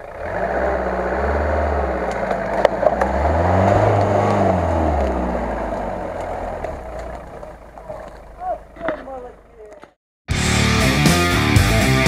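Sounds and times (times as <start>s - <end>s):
off-road engine revving hard: 0.0s - 9.2s.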